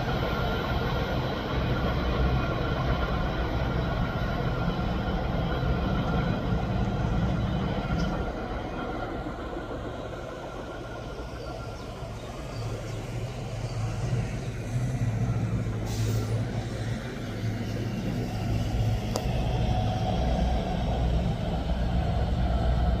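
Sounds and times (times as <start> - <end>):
train rumble and hum: 0.0 - 23.0
short hiss: 15.8 - 16.4.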